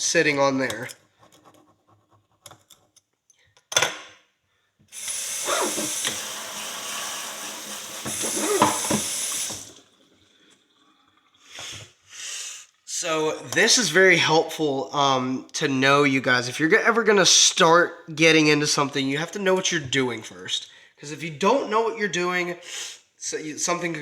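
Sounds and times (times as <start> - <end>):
water running from a tap: 4.9 - 10.0
knock: 8.1 - 9.1.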